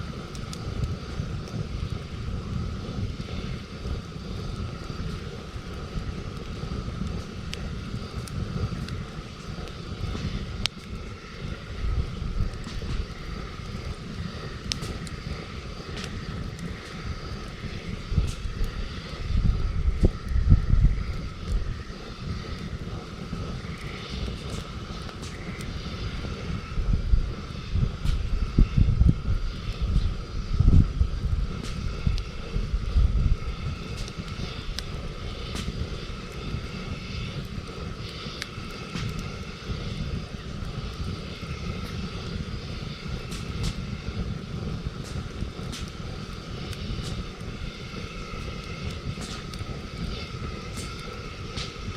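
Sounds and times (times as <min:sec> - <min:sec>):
campfire crackling and popping: 0:00.0 - 0:51.9.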